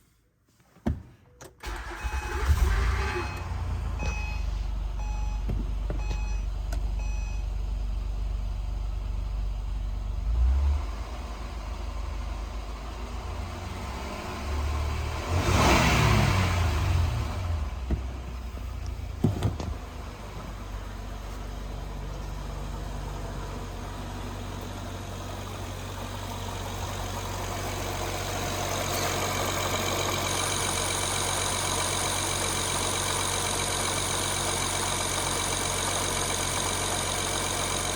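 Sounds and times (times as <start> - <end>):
car engine idling and revving: 1.6 - 37.9
short beeps: 4.0 - 7.5.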